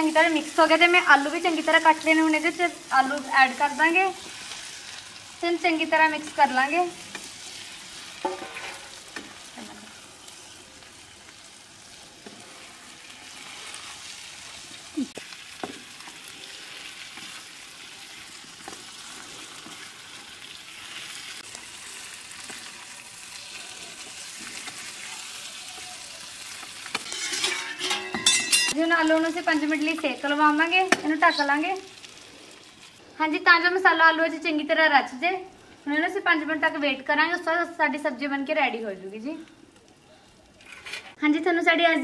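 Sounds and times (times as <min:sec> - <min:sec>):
potatoes frying hiss: 0:00.0 - 0:42.0
spoon scraping pan: 0:07.0 - 0:10.6, 0:26.9 - 0:28.8.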